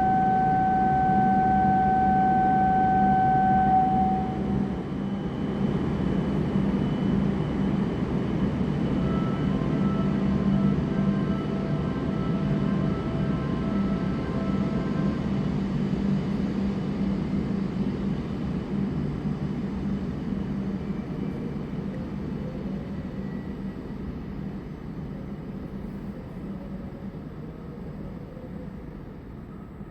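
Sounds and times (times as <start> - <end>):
train motor tones: 0.0 - 4.8.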